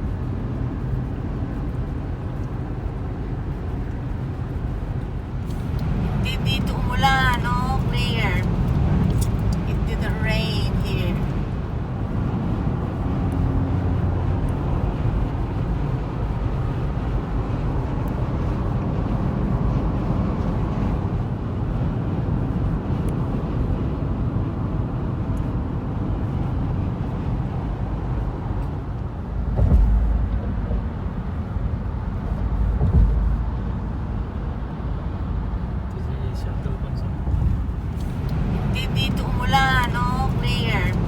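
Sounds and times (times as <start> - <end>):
car road and engine noise: 0.0 - 41.0
low rumbles: 27.3 - 41.0.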